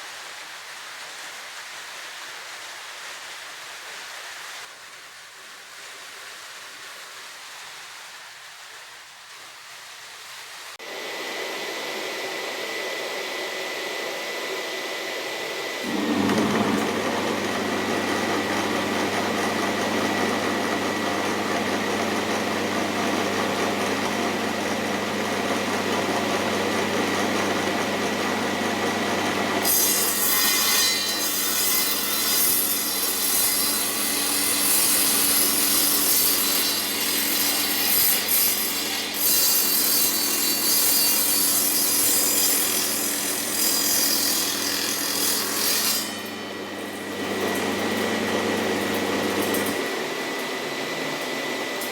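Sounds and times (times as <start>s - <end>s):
table saw humming: 10.8s - 51.9s
saw blade cutting wood: 15.6s - 49.9s.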